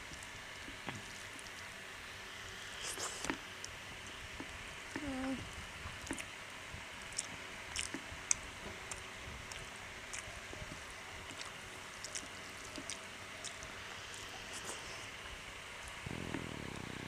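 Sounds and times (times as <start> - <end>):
chewing and lip smacks: 6.0 - 6.3, 7.0 - 10.3, 11.2 - 15.1
steady hiss: 8.1 - 17.0.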